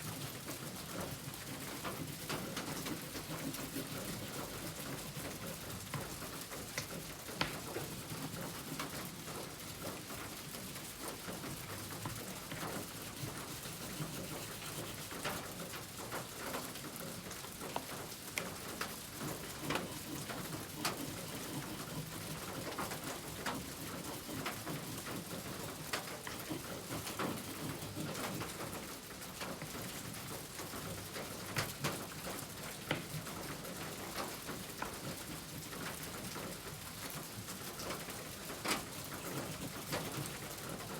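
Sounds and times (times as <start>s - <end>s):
steady rain: 5.8s - 24.8s.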